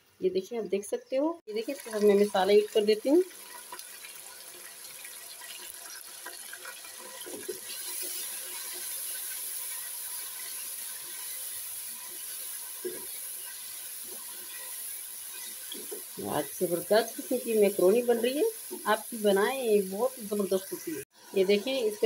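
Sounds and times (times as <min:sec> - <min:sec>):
chicken sizzling in oil: 0:01.5 - 0:22.0
wooden spatula stirring: 0:10.4 - 0:17.3.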